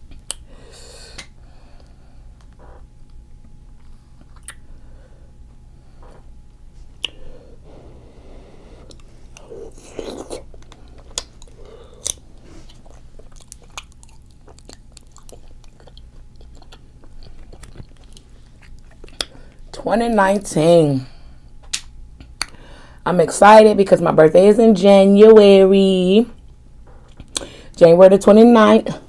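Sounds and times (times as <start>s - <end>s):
low steady hum: 0.0s - 29.0s
chewing and wet mouth smacks: 3.8s - 4.7s, 7.0s - 7.2s, 8.9s - 19.4s.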